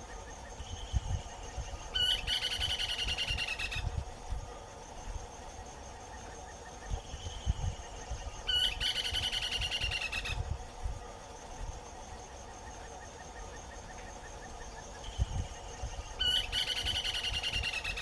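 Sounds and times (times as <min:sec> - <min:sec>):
bird calling with rolling trill: 0:01.6 - 0:03.8, 0:08.0 - 0:10.4, 0:12.6 - 0:18.0.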